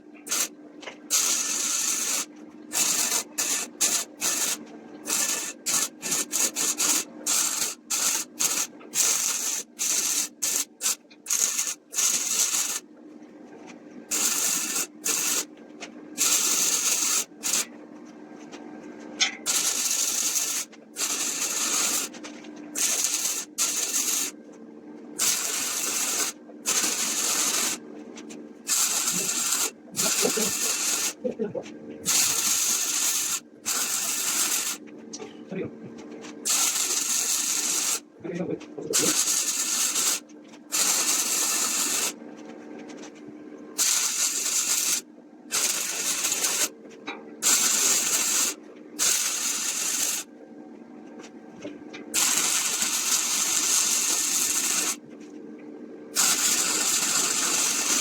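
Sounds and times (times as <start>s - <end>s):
hissing spray bursts: 1.1s - 12.8s, 14.1s - 15.5s, 16.2s - 17.7s, 19.5s - 22.2s, 22.8s - 24.4s, 25.2s - 27.8s, 28.7s - 31.2s, 32.1s - 34.8s, 36.5s - 38.0s, 38.9s - 42.2s, 43.8s - 46.7s, 47.4s - 50.3s, 52.2s - 55.0s, 56.2s - 58.0s.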